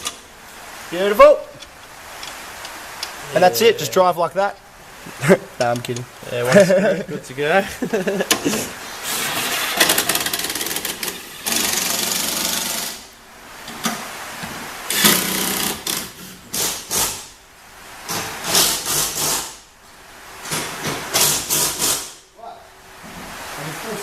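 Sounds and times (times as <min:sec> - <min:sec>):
power tool rapid clicking: 0:09.1 - 0:13.0, 0:14.9 - 0:17.2.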